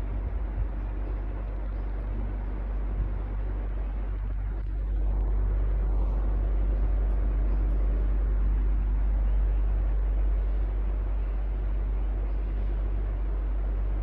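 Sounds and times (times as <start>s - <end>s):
electric fan running: 0.0s - 14.0s
low hum: 0.0s - 14.0s.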